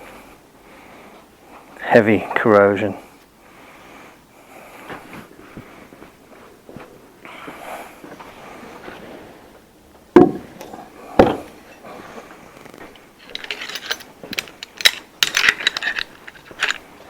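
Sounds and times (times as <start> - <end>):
metal tools clicking and clattering: 13.2 - 16.9.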